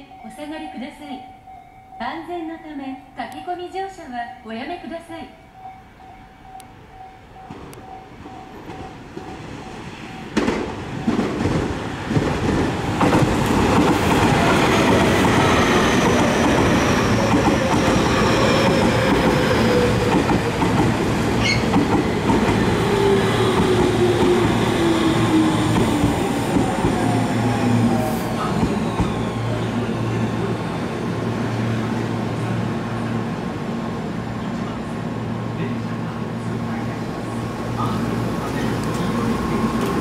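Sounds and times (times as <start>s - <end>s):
electric train rumbling past: 0.0s - 40.0s
wheels clattering on rails: 10.2s - 24.7s.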